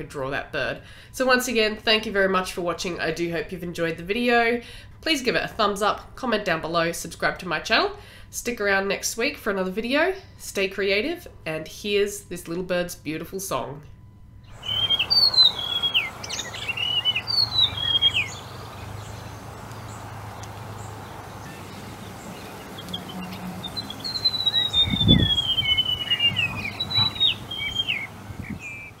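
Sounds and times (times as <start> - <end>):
background hiss: 14.5 - 29.0
bird singing high falling phrases: 14.5 - 29.0.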